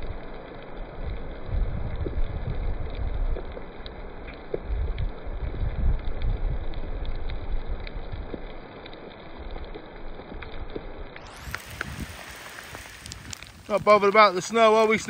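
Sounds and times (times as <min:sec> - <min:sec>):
hailstones pattering: 0:00.0 - 0:15.0
hiss of falling precipitation: 0:00.0 - 0:15.0
wind buffeting microphone: 0:00.9 - 0:03.9, 0:04.5 - 0:08.7, 0:10.3 - 0:15.0.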